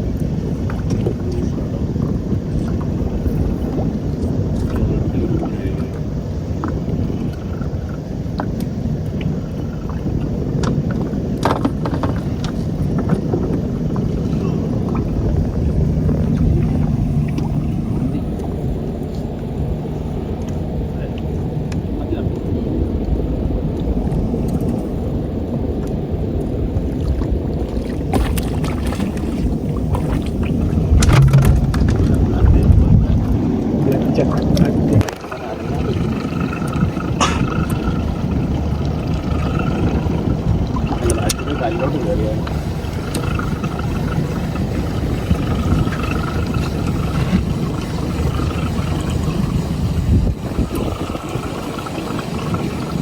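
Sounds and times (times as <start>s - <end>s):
boat engine rumble: 0.0s - 53.0s
sharp knocks: 31.0s - 32.0s.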